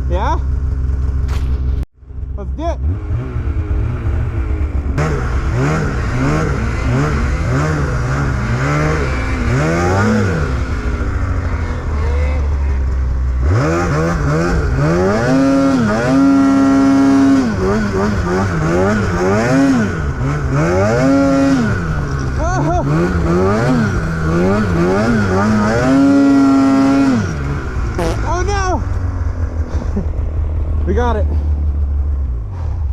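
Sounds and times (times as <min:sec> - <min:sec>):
snowmobile engine revving: 0:02.4 - 0:32.9.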